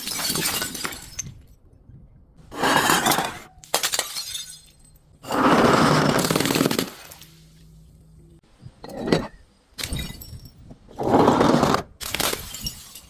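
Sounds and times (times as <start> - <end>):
glass bottles shattering: 0.0 - 1.4, 2.7 - 5.4, 9.8 - 10.6, 12.0 - 13.0.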